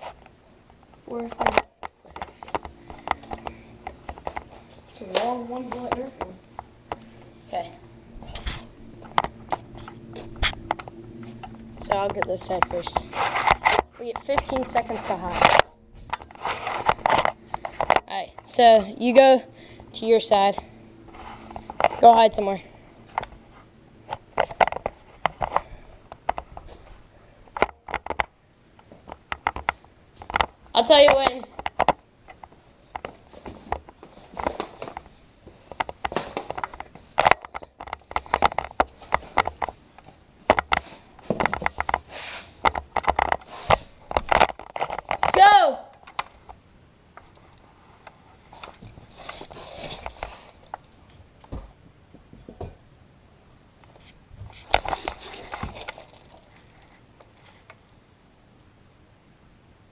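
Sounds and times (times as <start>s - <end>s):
footsteps: 0.0s - 27.1s
rustling handling noise: 0.0s - 28.2s, 28.8s - 51.8s, 53.8s - 57.8s.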